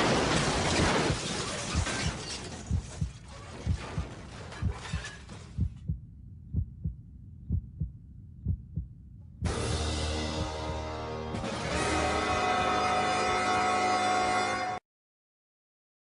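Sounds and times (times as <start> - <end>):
heartbeat thumps: 2.7 - 9.6, 10.3 - 10.8.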